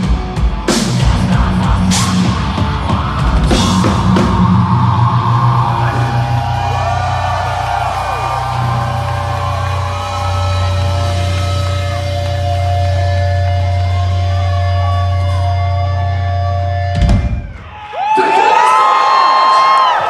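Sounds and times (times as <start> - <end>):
distorted guitars and bass chord: 0.0 - 17.3.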